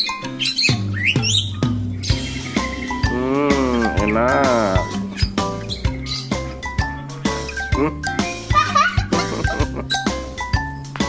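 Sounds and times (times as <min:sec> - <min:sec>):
pet bird high calls: 0:00.0 - 0:08.4
background music: 0:00.0 - 0:11.0.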